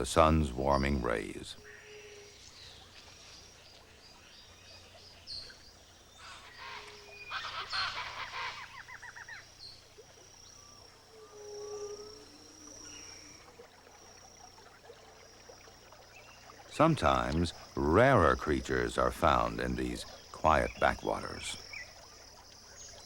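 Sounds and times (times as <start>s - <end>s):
birds calling: 0.0s - 14.5s
thin steady high tone: 10.4s - 22.0s.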